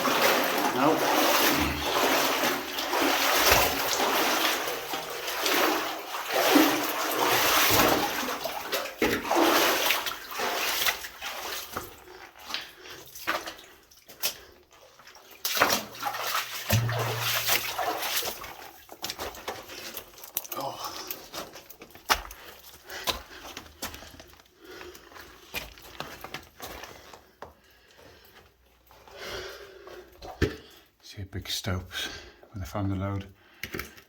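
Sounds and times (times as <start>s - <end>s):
water splashing around legs: 0.0s - 24.1s.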